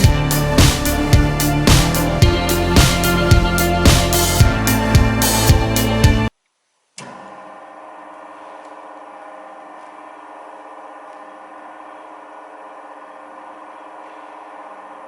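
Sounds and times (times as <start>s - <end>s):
machine motor hum: 7.0s - 15.0s.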